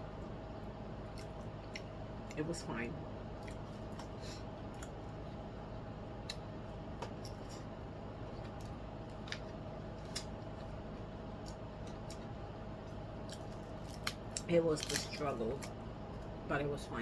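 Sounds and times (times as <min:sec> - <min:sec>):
steady low hum: 0:00.0 - 0:17.0
mouth chewing food: 0:01.0 - 0:02.4, 0:03.3 - 0:05.5.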